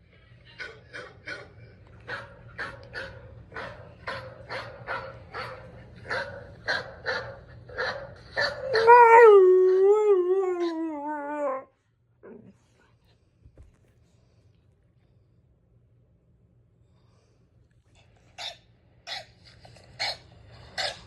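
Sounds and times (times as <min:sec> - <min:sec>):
dog barking: 0:02.1 - 0:08.8
dog howling: 0:08.6 - 0:11.7.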